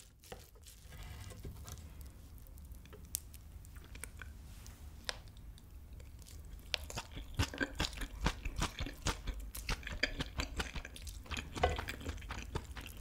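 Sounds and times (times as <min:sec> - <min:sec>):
wet chewing mouth clicks: 0:05.1 - 0:13.0.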